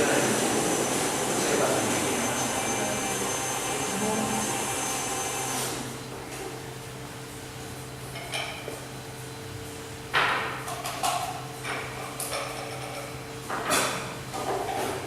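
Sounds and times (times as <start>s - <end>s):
machine whir with high whine: 0.0s - 8.2s.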